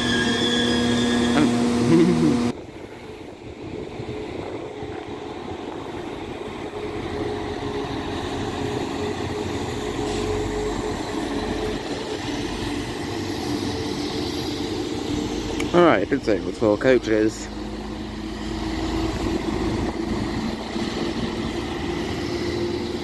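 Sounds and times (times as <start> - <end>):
train engines humming: 0.0 - 23.0
wheels rumbling: 0.0 - 23.0.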